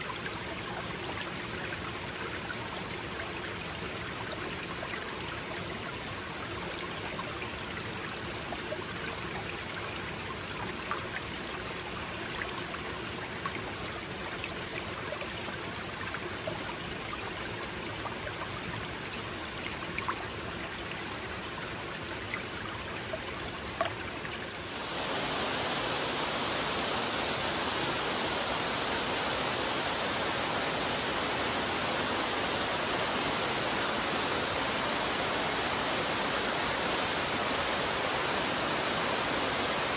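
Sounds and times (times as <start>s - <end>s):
creek water over rocks: 0.0s - 39.9s
waterfall rushing: 24.6s - 39.9s.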